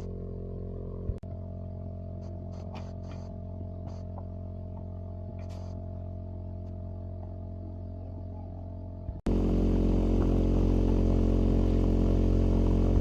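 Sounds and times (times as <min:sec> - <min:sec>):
motorcycle engine running: 0:00.0 - 0:05.4, 0:09.0 - 0:13.0.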